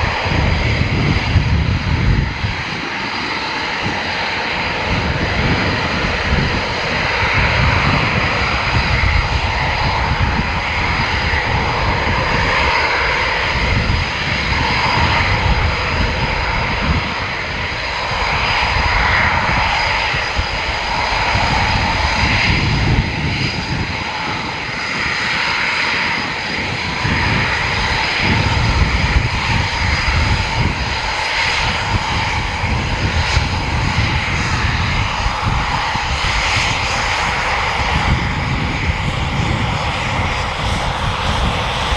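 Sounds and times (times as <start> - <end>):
fighter jet engines rumbling: 0.0 - 41.9
high steady jet whine: 0.0 - 41.9.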